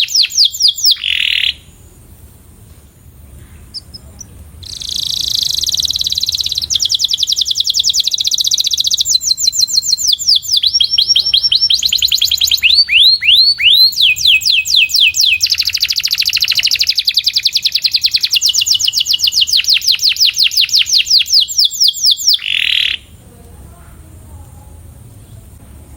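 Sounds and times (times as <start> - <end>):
canary singing trills: 0.0 - 2.0, 3.3 - 23.2
canary falling whistled notes: 4.6 - 23.0.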